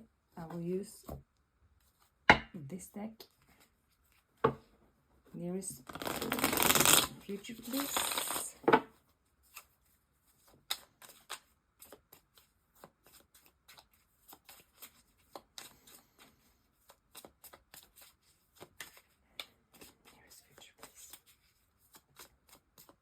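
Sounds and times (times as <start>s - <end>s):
cards being shuffled: 5.8s - 8.6s, 9.4s - 23.0s.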